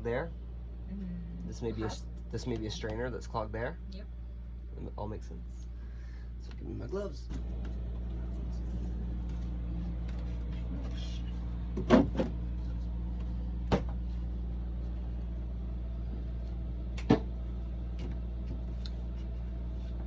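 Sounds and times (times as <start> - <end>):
steady low hum: 0.0 - 20.0
knocks and clunks of pipes: 11.7 - 12.4.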